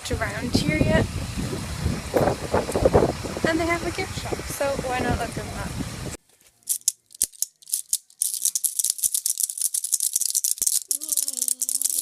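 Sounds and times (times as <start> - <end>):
small object rattling when shaken: 6.7 - 12.0
person speaking: 10.7 - 12.0.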